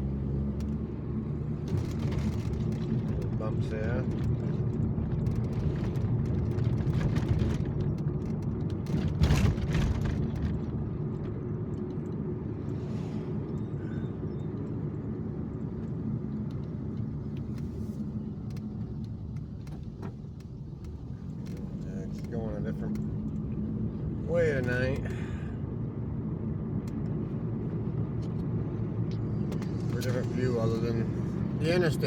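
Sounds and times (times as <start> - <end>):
car interior road rumble: 0.0 - 32.0
car knocks over bumps: 1.6 - 11.0.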